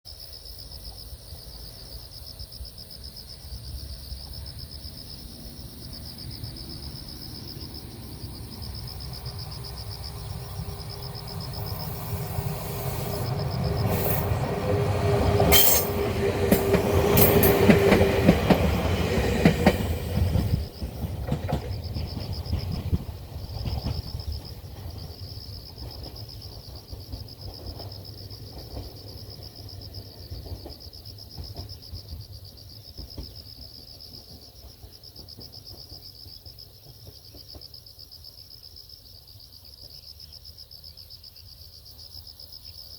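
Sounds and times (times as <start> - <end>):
crickets trilling: 0.1 - 42.9
electric train passing: 3.8 - 31.7
wheels clicking over rail joints: 13.2 - 30.8.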